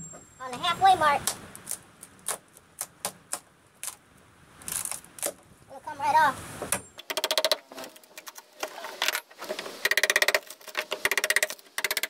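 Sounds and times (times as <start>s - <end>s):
power tool chattering on wood: 6.7s - 8.3s, 9.0s - 12.0s.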